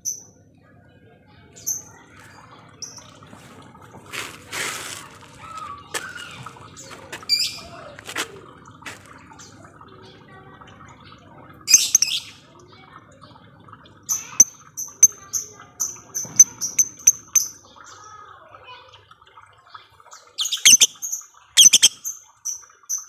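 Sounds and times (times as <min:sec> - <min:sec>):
lovebird chirping and squawking: 0:02.8 - 0:03.1, 0:11.7 - 0:12.3, 0:14.1 - 0:17.6, 0:20.4 - 0:23.0.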